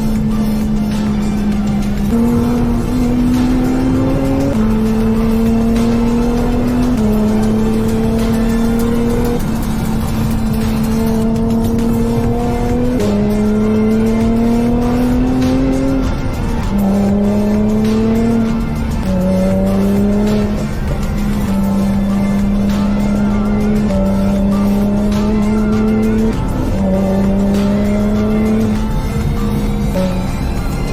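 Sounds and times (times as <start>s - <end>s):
car engine and exhaust: 0.0s - 30.9s.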